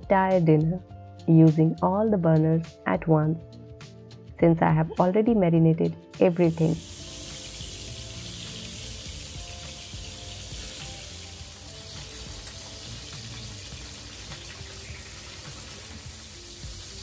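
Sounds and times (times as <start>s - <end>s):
soft background music: 0.0s - 17.0s
fish frying in pans: 6.6s - 17.0s.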